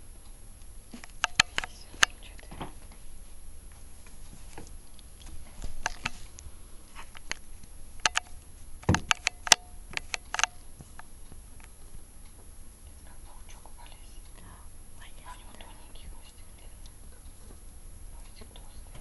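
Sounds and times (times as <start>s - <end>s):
kittens clicking and scratching: 0.9s - 2.7s.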